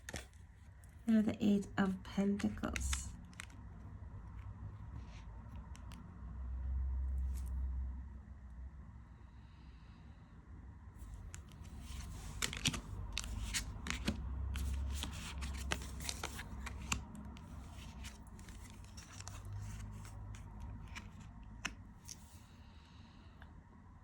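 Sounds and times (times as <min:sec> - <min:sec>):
cards being shuffled: 0:00.0 - 0:01.0, 0:02.4 - 0:03.7, 0:11.0 - 0:22.4.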